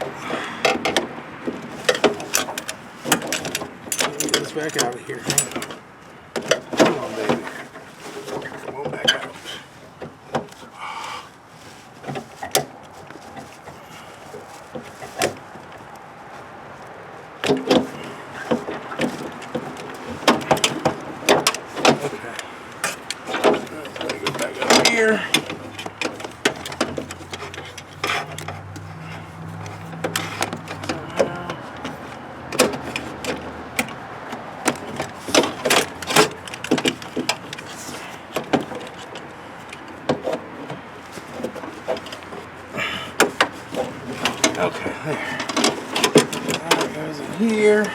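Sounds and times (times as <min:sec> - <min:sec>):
plastic and metal parts clicking: 0:43.2 - 0:47.9.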